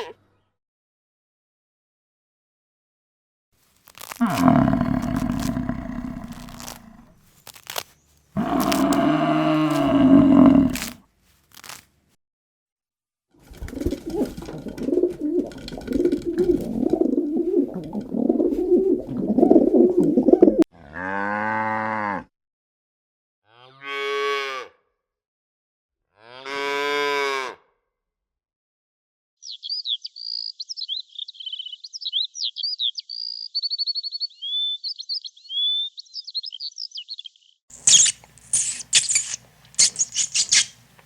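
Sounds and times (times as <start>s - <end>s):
cattle mooing: 4.2s - 7.2s, 8.4s - 11.0s.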